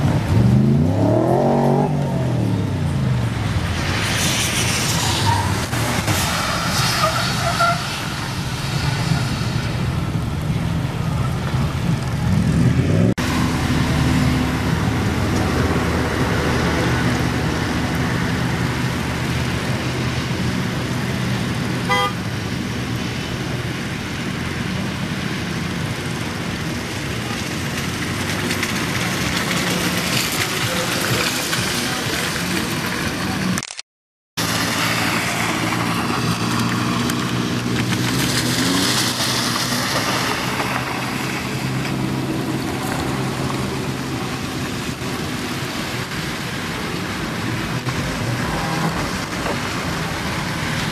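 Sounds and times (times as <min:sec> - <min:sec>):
car engine revving: 0:00.0 - 0:22.1, 0:34.4 - 0:50.9
car horn toot: 0:21.9 - 0:22.2.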